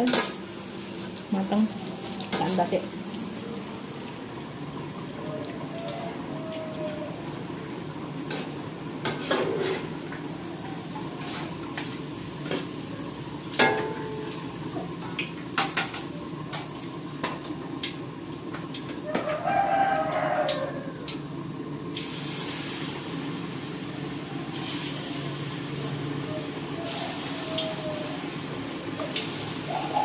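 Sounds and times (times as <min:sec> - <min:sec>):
fritters sizzling in oil: 0:00.0 - 0:30.0
metal spatula scraping pan: 0:09.0 - 0:10.0.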